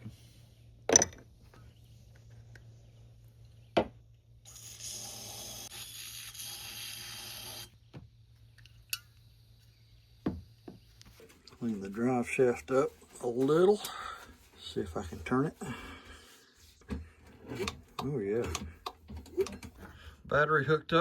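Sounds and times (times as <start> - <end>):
aerosol spray can hissing: 4.5 - 7.7
tools clicking and knocking: 17.5 - 19.9.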